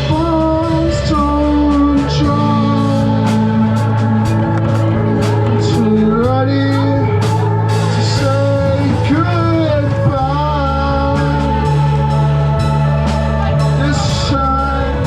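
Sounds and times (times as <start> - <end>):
held bass notes: 0.0 - 15.0
live band playing slow rock: 0.0 - 15.0
person singing: 0.0 - 15.0.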